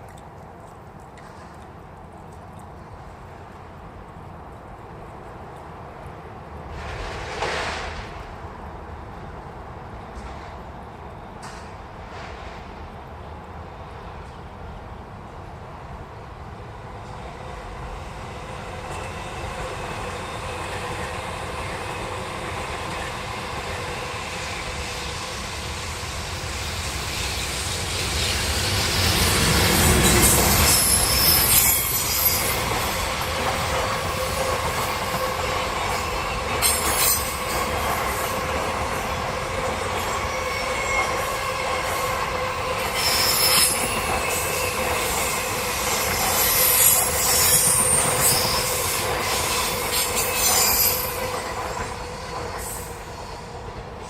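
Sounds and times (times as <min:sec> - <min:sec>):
train rolling rumble: 0:01.2 - 0:54.0
train wheels squealing: 0:18.3 - 0:53.8.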